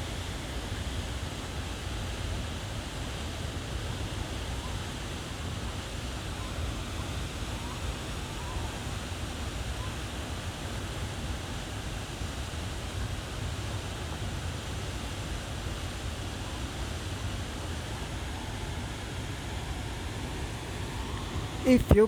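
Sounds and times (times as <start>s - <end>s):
waterfall roaring: 17.0s - 22.0s.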